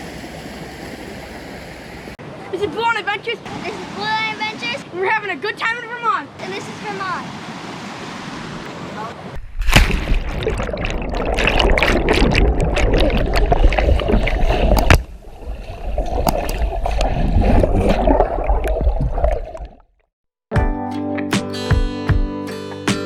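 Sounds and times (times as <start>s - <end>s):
water splashing and sloshing: 0.0s - 20.1s
wind rumble on microphone: 11.7s - 19.5s.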